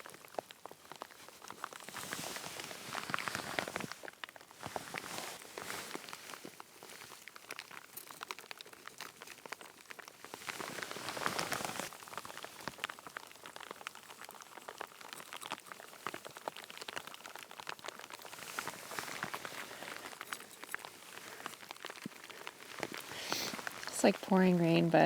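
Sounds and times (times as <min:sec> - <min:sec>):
heavy rain pattering: 0:10.3 - 0:25.0.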